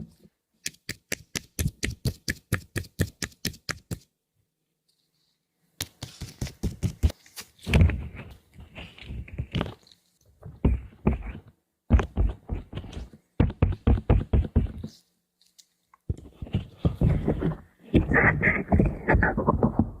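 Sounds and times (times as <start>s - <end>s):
quick taps and clicks: 0.6s - 4.1s.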